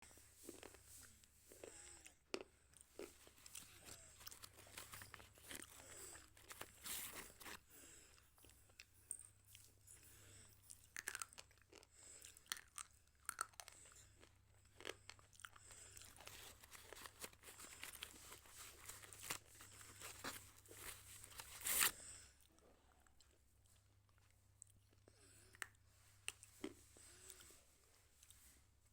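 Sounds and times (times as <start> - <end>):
crunchy chewing of slate pencil: 0.4 - 9.7, 10.3 - 22.0.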